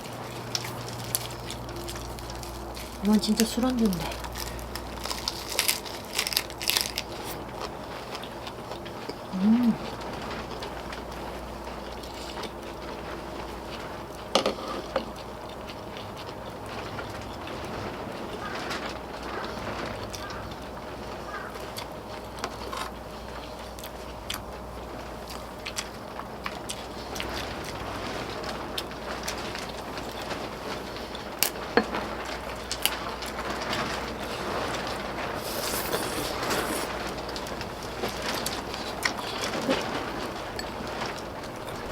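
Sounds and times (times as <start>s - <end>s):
quiet eating: 0.0s - 20.6s, 21.3s - 41.9s
outdoor background noise: 0.0s - 41.9s.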